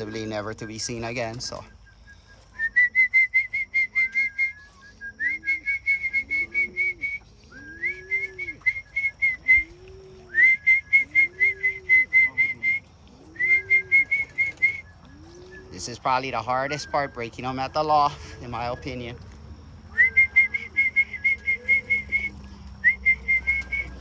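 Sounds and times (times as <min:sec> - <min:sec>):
low rising-and-falling calls: 0:00.0 - 0:24.0
person whistling rapid notes: 0:01.6 - 0:12.8, 0:13.4 - 0:15.8, 0:19.9 - 0:24.0.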